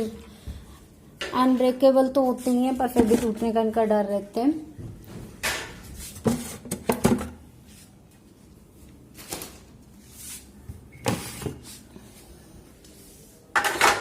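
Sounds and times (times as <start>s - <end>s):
plastic trays knocking and rattling: 5.3s - 7.4s.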